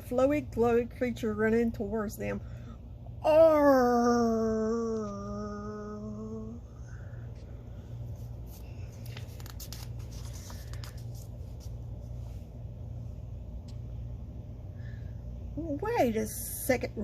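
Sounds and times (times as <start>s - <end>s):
low steady hum: 0.0s - 17.0s
woman moaning: 3.2s - 6.9s
faint clicks and rustles: 7.3s - 12.4s.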